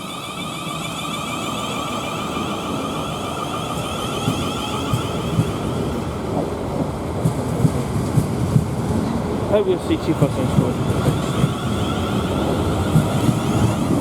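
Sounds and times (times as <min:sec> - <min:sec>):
electric train motor whine: 0:00.0 - 0:06.0, 0:10.8 - 0:14.0
train rumble: 0:00.0 - 0:14.0
wheels knocking on track: 0:03.8 - 0:14.0.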